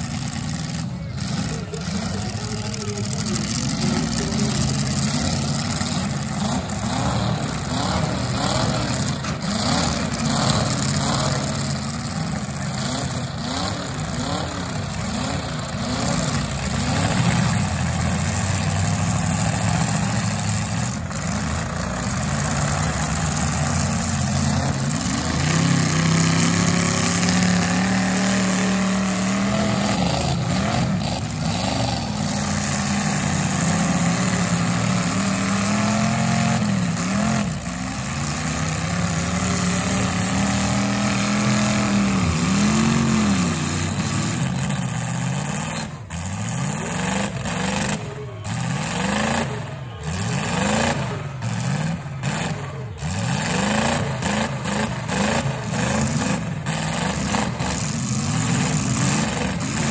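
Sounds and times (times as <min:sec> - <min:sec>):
car engines revving: 0:00.0 - 0:59.9.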